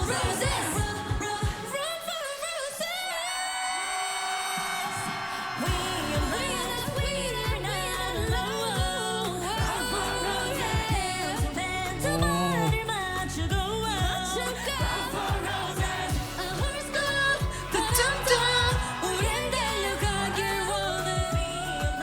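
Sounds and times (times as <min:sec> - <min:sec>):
band track with kick drum: 0:00.0 - 0:01.7, 0:05.7 - 0:10.2, 0:10.8 - 0:22.0
woman singing pop song: 0:00.0 - 0:22.0.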